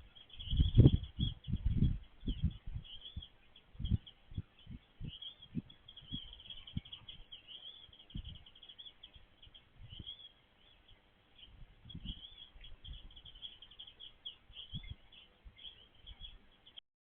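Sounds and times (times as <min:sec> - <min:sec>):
small birds chirping: 0:00.0 - 0:16.8
dull low thumps: 0:00.4 - 0:07.0, 0:08.1 - 0:08.5.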